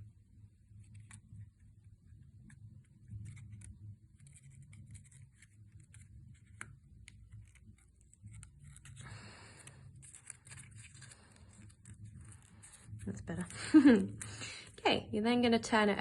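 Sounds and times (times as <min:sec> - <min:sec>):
paper crinkling: 0:00.8 - 0:14.8.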